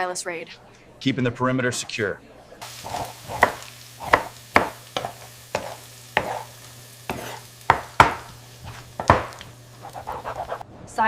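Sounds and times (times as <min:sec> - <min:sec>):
sharp taps or knocks: 0:09.0 - 0:09.5.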